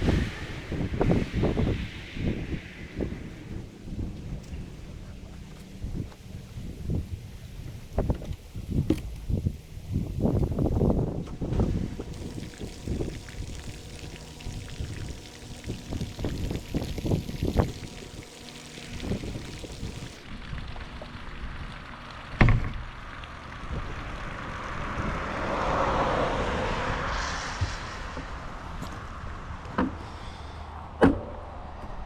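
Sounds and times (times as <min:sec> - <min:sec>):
hiss: 0:00.0 - 0:05.4, 0:09.7 - 0:20.2, 0:25.5 - 0:31.0
wind buffeting microphone: 0:00.0 - 0:20.7, 0:23.6 - 0:30.0
e-bike tyres rolling: 0:00.0 - 0:30.6.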